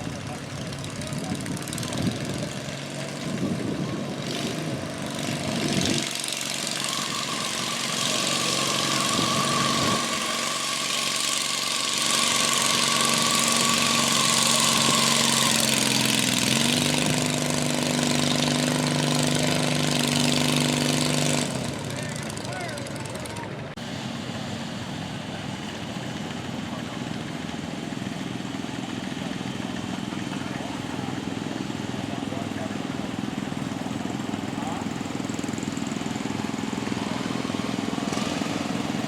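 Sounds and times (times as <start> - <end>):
engine running: 0.0 - 39.0.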